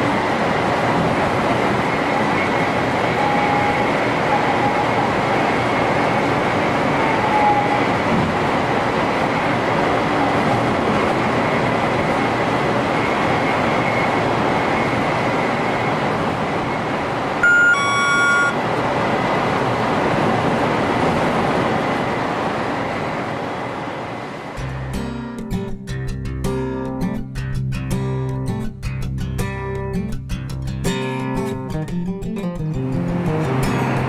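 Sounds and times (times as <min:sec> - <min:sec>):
train cab rushing noise: 0:00.0 - 0:24.6
short electronic chime: 0:17.4 - 0:18.6.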